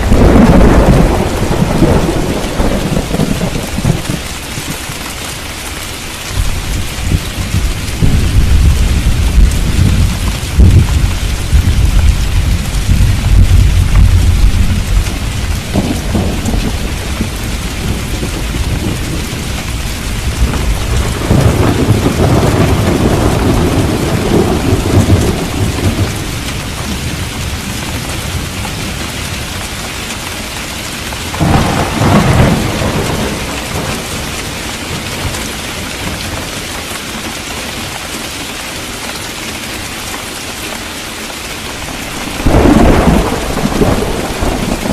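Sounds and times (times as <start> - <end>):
sharp thunder crack: 0.0 - 4.2, 42.3 - 44.9
thunder rumbling: 0.0 - 4.9, 6.4 - 29.4, 31.3 - 36.4, 41.8 - 44.9
heavy rain: 0.0 - 44.9.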